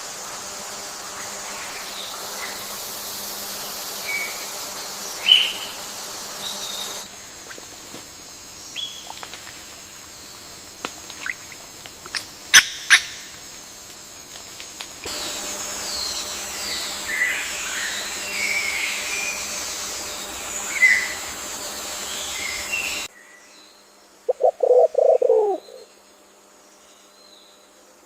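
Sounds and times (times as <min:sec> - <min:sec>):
steady hiss: 0:00.0 - 0:23.1
bird low pulsed call: 0:24.3 - 0:25.8
birds chirping and singing: 0:24.3 - 0:25.8.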